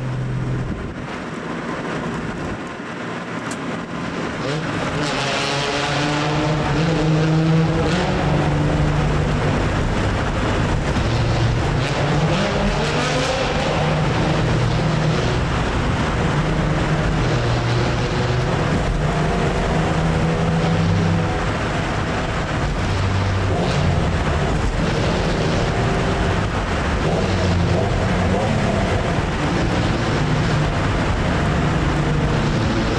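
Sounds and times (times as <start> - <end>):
car engines echoing in a tunnel: 0.0 - 32.9.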